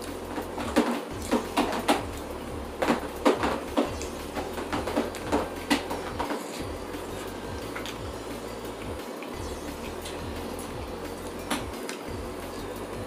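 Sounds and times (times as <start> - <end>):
chewing and lip-smacking: 0.0 - 2.4.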